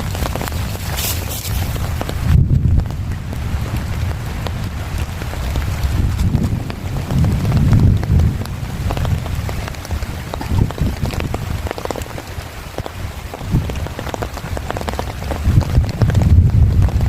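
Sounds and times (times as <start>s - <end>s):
low rumble: 0.0s - 11.7s
heavy rain drops: 0.0s - 17.0s.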